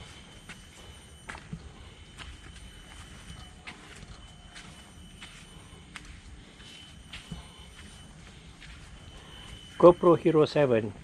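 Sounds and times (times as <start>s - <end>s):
soft footsteps on forest floor: 0.0s - 10.4s
faint high-pitched tone: 0.0s - 11.0s.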